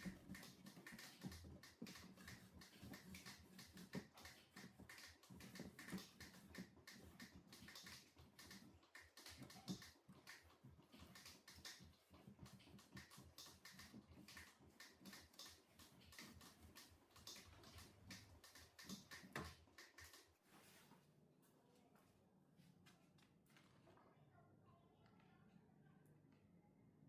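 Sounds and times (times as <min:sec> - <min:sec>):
faint small clicks and taps: 0:00.0 - 0:20.5.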